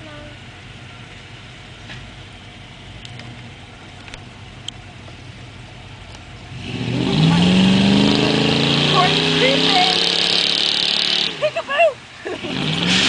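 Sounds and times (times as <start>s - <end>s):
truck engine revving: 6.1s - 13.0s.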